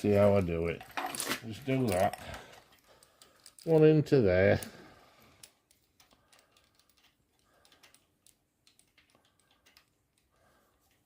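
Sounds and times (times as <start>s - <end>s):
small clicks and taps: 5.4s - 11.0s.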